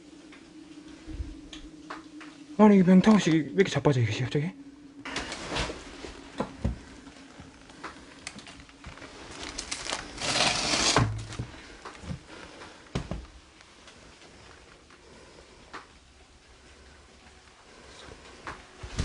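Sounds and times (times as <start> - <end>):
rustling or scraping: 5.1 - 12.8.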